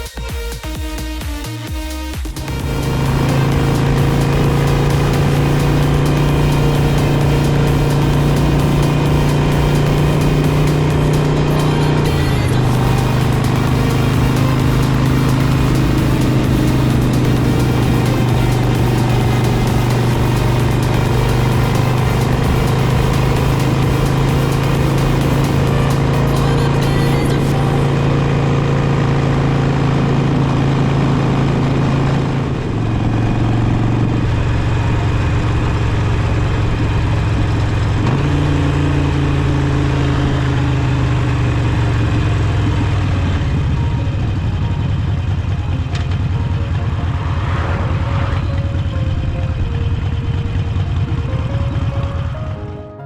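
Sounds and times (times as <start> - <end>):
motorcycle engine running: 0.0 - 47.2.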